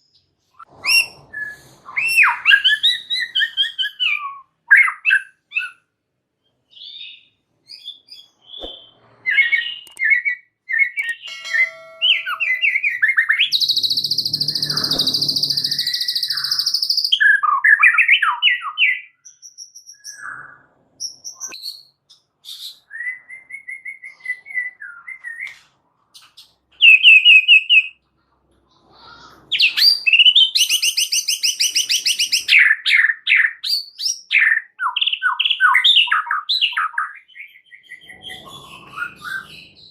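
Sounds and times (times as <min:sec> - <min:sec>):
bird singing: 0:00.9 - 0:05.8, 0:06.4 - 0:25.5, 0:29.5 - 0:39.9.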